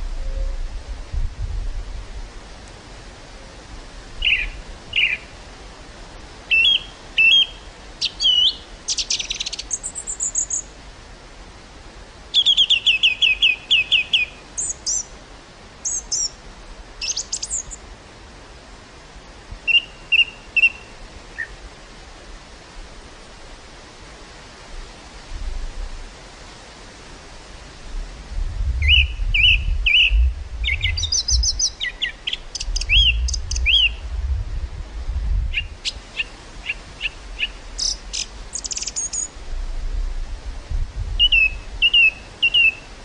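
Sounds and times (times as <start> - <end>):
wind hiss: 0.0 - 43.0
small birds chirping: 4.2 - 5.3, 6.5 - 10.7, 12.4 - 15.1, 15.8 - 16.4, 17.0 - 17.8, 28.8 - 34.0, 35.5 - 39.3
bird trill: 6.5 - 10.7, 17.0 - 17.8, 19.7 - 21.5, 28.8 - 34.0, 35.5 - 39.3.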